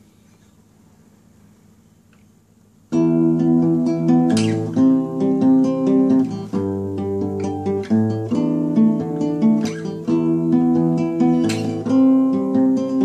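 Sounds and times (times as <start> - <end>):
acoustic guitar picking and strumming: 2.9 - 13.0.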